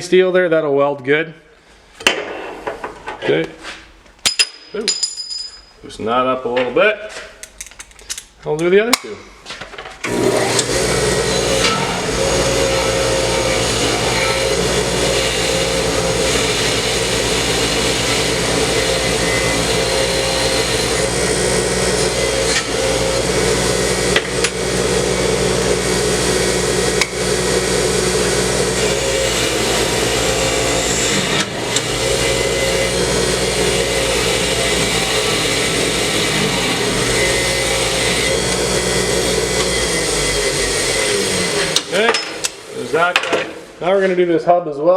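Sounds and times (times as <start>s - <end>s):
wire wheel brushing metal: 10.1s - 43.1s.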